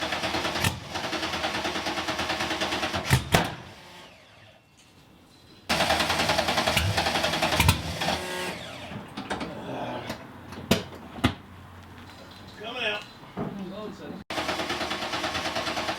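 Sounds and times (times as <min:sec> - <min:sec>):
sharp exhaust pops: 0:05.7 - 0:08.2
starter motor cranking: 0:05.7 - 0:09.0, 0:14.3 - 0:15.9.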